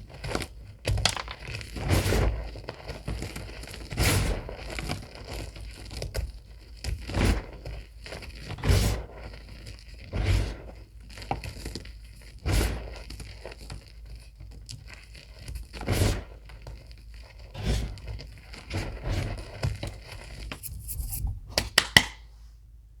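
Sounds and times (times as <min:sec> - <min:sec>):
chalk crunching: 0:14.9 - 0:21.3.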